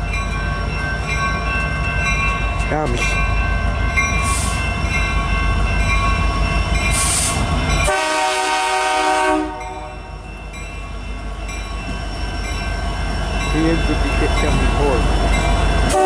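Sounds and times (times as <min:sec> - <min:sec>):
diesel locomotives rumbling past: 0:00.0 - 0:16.0
train air horn blast: 0:07.1 - 0:10.0.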